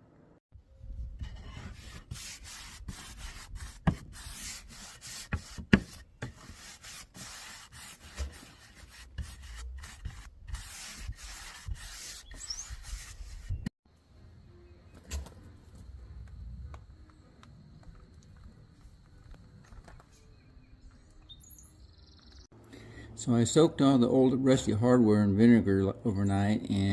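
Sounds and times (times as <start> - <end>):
abrasive sanding strokes: 1.2 - 13.7.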